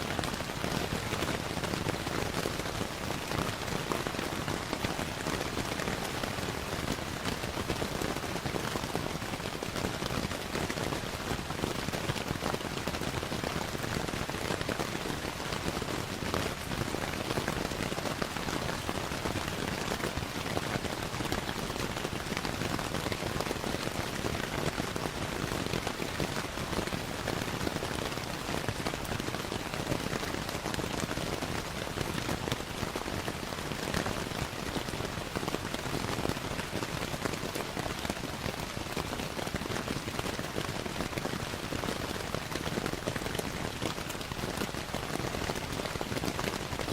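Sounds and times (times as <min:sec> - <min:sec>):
steady rain hiss: 0:00.0 - 0:46.9.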